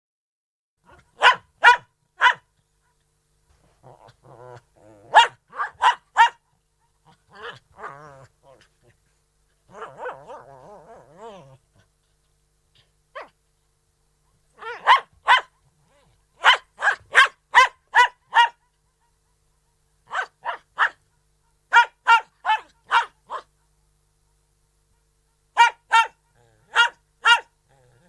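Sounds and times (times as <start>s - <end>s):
dog barking: 0.8s - 3.0s, 5.1s - 8.7s, 9.7s - 10.5s, 13.2s - 13.4s, 14.6s - 18.7s, 20.1s - 21.0s, 21.7s - 23.5s, 25.6s - 27.5s.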